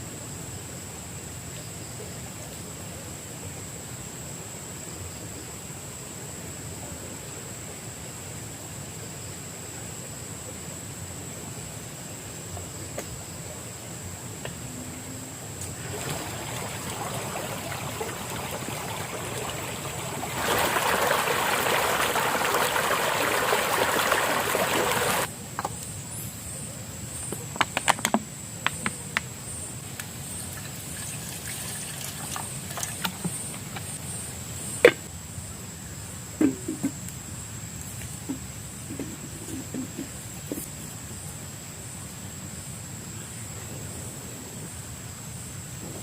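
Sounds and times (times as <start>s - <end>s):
water pouring: 15.6s - 25.3s, 30.6s - 33.1s.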